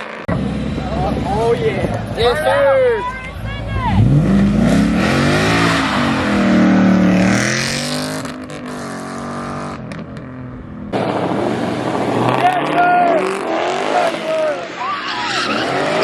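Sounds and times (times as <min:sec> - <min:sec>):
car engine revving hard: 0:03.9 - 0:10.0, 0:11.0 - 0:14.5.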